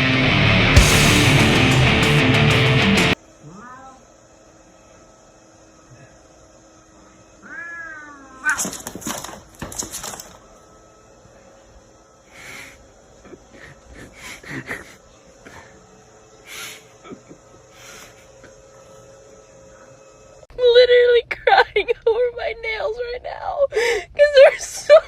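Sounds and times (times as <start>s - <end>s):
loud harsh noise bursts: 0.0s - 3.2s
cat meowing: 3.4s - 4.1s, 7.4s - 8.6s.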